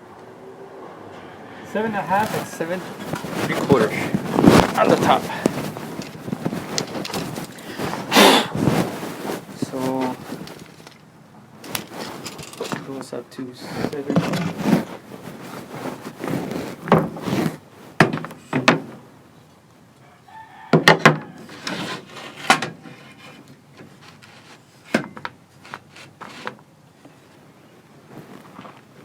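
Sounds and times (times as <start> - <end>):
rooster crowing: 20.0 - 21.7.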